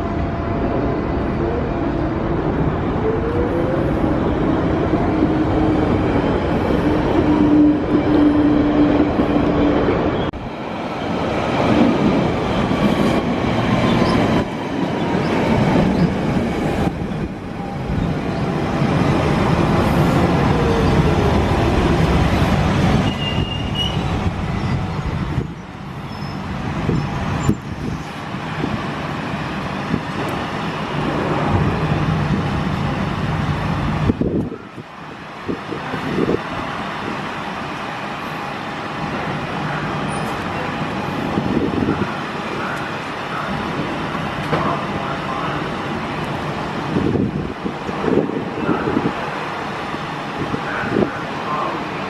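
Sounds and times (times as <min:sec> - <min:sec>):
underground train rumbling: 0:00.0 - 0:52.0.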